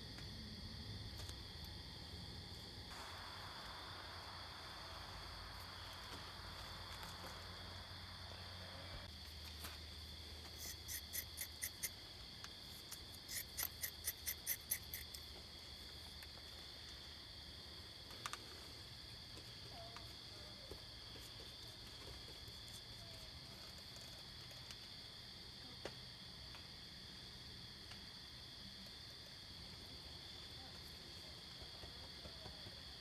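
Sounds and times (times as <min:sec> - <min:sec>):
rapid loud insect chirps: 0:00.0 - 0:19.3
insects trilling: 0:00.0 - 0:25.8.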